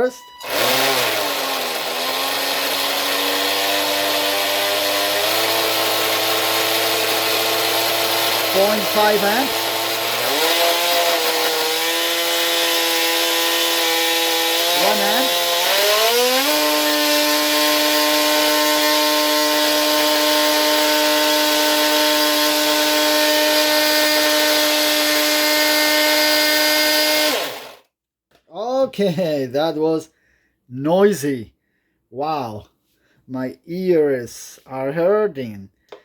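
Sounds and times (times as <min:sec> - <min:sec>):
electric motor whining: 0:00.0 - 0:27.8.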